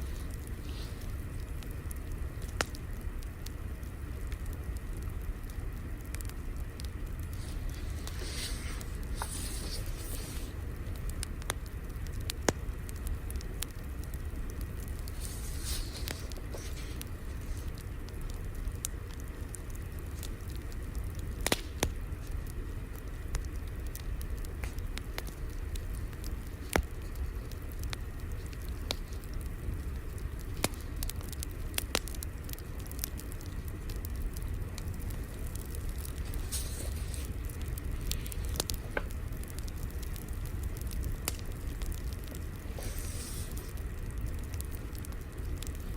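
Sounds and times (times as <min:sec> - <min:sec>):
soft hissing: 0:00.0 - 0:01.7, 0:06.8 - 0:11.3, 0:14.8 - 0:18.3, 0:35.0 - 0:39.2, 0:42.0 - 0:44.1
fire crackling and popping: 0:00.0 - 0:45.9.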